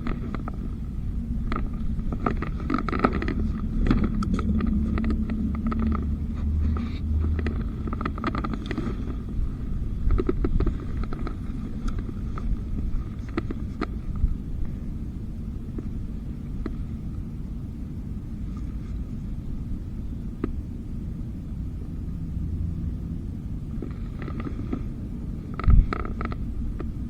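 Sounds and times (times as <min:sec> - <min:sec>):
handling clicks and scrapes: 0:00.0 - 0:14.8, 0:23.7 - 0:27.0
wind rumbling on microphone: 0:00.0 - 0:27.0.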